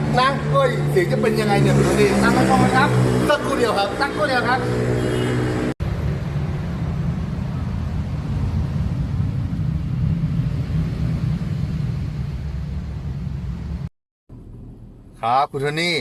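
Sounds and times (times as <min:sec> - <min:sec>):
car engine rumbling: 0:05.6 - 0:16.0.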